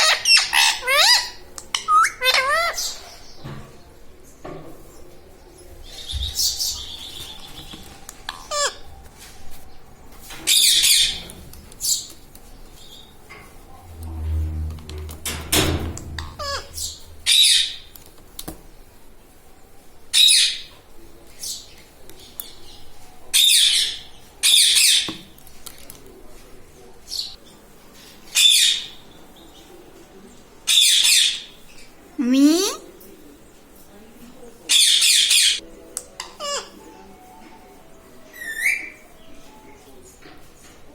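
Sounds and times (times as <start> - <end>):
parakeet screeching: 16.4 - 17.8.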